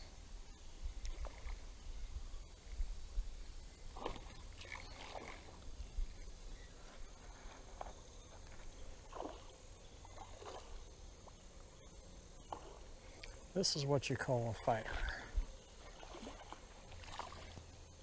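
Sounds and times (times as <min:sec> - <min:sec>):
fish splashing in water: 0:09.0 - 0:10.9, 0:15.8 - 0:17.7.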